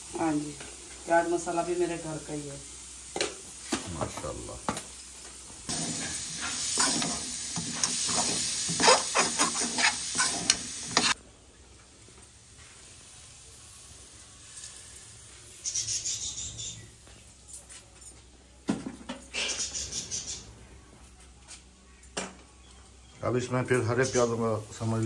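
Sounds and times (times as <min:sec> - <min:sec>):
chickpeas sizzling in oil: 0:00.0 - 0:16.9, 0:23.7 - 0:25.0
spoon scraping a metal wok: 0:05.7 - 0:11.2.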